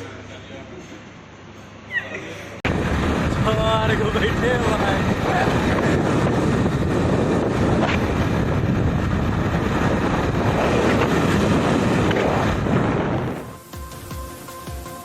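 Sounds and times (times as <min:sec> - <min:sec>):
moving vehicle rumble: 0:01.9 - 0:13.6
wind on microphone: 0:02.7 - 0:13.6.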